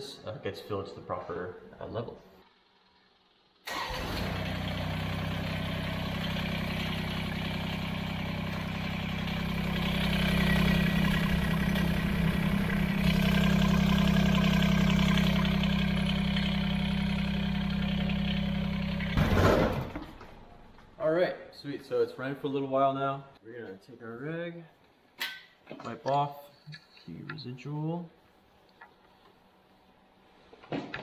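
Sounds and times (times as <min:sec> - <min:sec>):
tractor diesel engine idling: 0:03.7 - 0:21.0.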